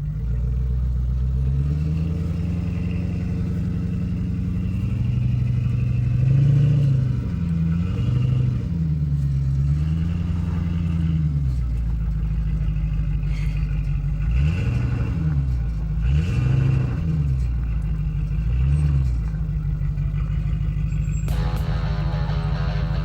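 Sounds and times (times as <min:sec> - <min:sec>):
background music: 0:21.3 - 0:23.0
car engine revving: 0:21.3 - 0:23.0.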